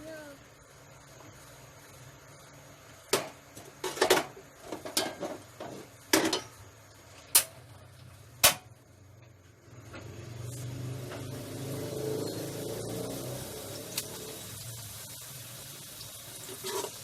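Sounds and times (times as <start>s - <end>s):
spatula scraping a pan: 16.4s - 17.0s.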